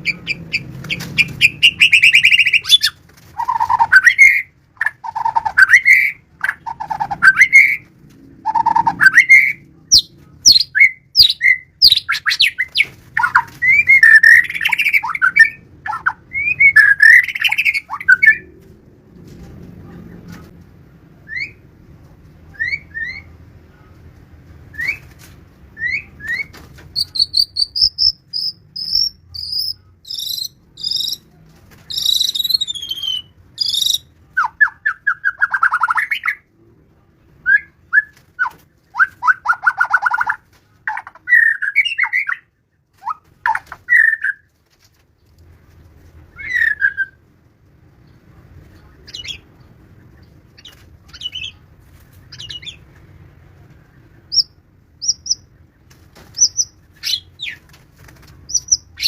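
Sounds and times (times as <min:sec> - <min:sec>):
bird singing whistled notes: 0:25.8 - 0:31.2, 0:31.9 - 0:34.0.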